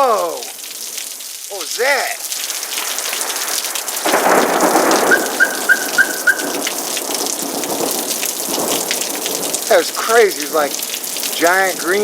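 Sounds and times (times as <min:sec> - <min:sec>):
heavy rain pouring: 0:00.0 - 0:12.0
thunder rumbling: 0:02.3 - 0:11.8
quick high chirps: 0:05.1 - 0:06.6.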